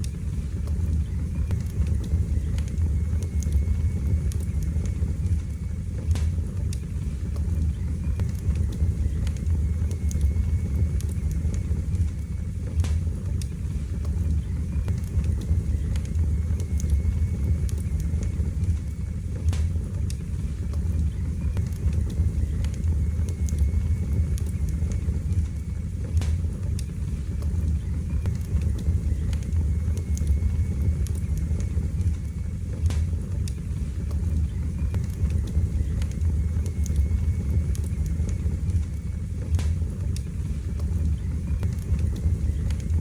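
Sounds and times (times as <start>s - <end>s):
low rumble of flames: 0.0s - 43.0s
wood fire crackling and popping: 0.0s - 43.0s.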